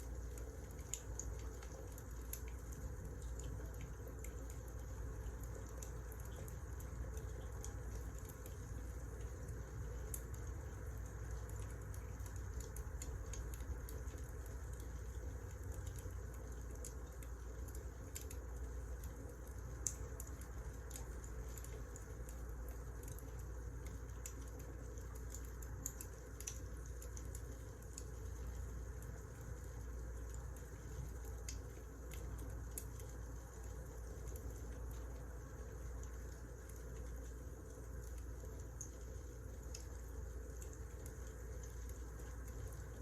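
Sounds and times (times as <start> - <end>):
wood fire crackling and popping: 5.3 - 35.1.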